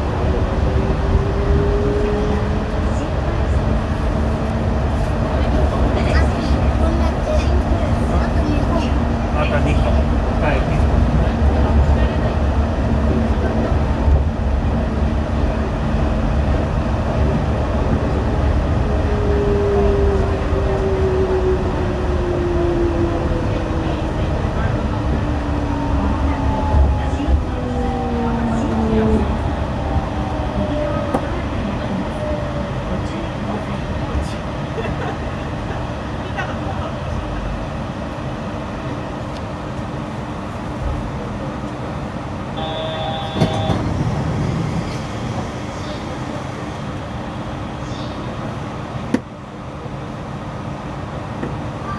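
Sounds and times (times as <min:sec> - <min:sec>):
train rumbling: 0:00.0 - 0:51.9
brief high tone: 0:42.6 - 0:43.8.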